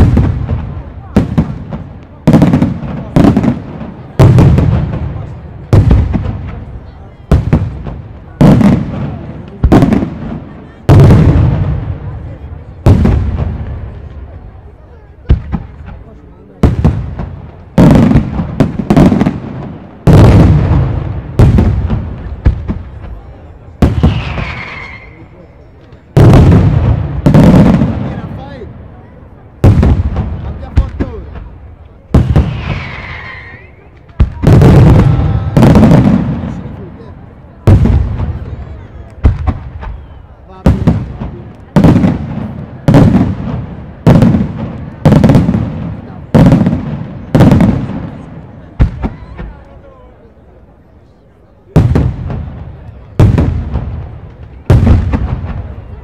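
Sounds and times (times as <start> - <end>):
firework explosions with echo: 0.0 - 56.0
firework pops: 7.3 - 12.1, 15.2 - 25.2, 25.8 - 28.3, 29.6 - 37.0, 37.6 - 49.8, 51.7 - 56.0.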